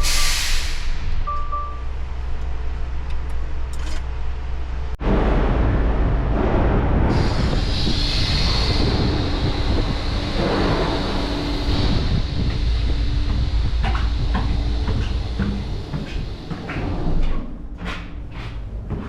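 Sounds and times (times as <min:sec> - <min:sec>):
hiss: 0:00.0 - 0:01.1, 0:07.1 - 0:16.3
heavy machinery rumbling: 0:02.0 - 0:19.0.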